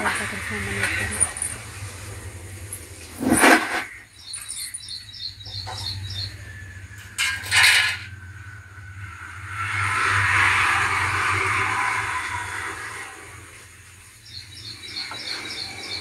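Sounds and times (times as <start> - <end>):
small bird chirping: 3.2 - 7.1, 13.8 - 16.0.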